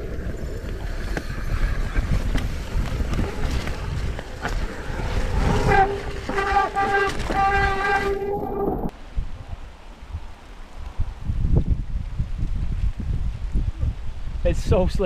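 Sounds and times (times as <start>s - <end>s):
bike frame rattles: 0.0s - 8.9s
bike tyre rumble: 0.0s - 8.9s
disc brakes squealing: 0.0s - 8.9s
wind on microphone: 0.0s - 15.0s.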